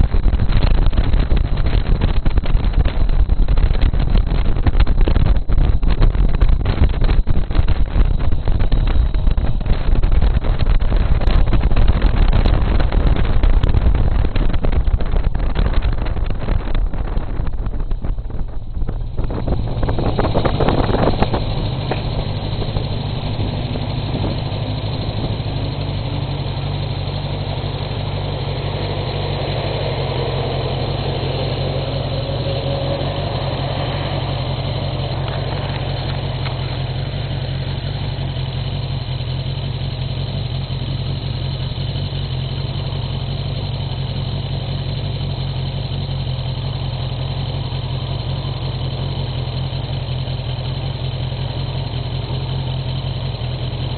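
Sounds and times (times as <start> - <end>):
wind buffeting microphone: 0.0 - 26.1
motorcycle engine running: 0.0 - 53.9.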